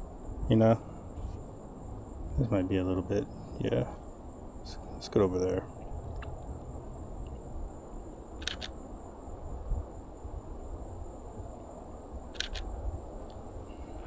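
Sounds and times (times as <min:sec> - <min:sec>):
steady low rumble: 0:00.0 - 0:14.0
camera shutter double click: 0:08.4 - 0:08.8, 0:12.4 - 0:12.7.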